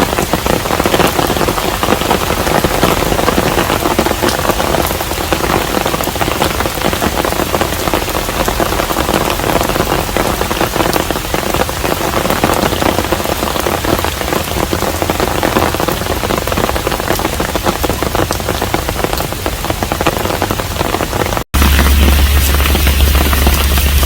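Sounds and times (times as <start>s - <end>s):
rain pattering on a house: 0.0s - 24.0s
deep low hum: 21.6s - 24.0s.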